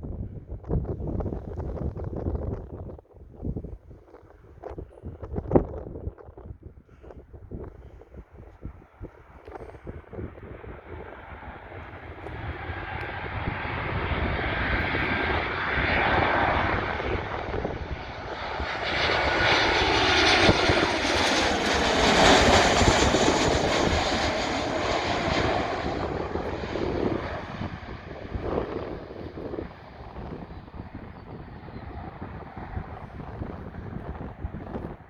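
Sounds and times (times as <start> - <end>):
jet airliner passing: 8.7 - 35.0.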